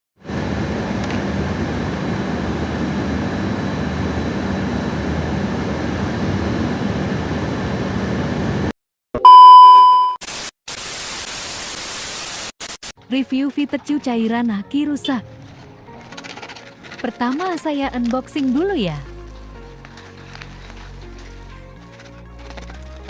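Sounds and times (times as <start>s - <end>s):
electronic beep: 9.2s - 10.2s
static hiss: 10.3s - 12.9s.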